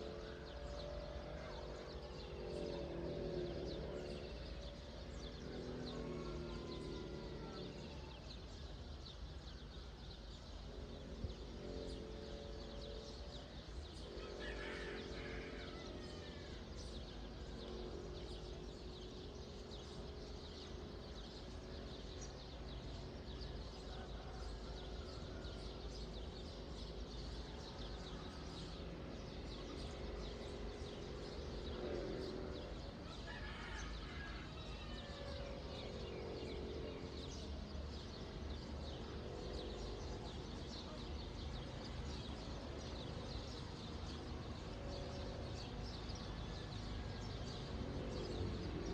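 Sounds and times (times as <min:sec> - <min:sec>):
low pitched animal calls: 0:00.0 - 0:08.2
low steady rumble: 0:00.0 - 0:48.9.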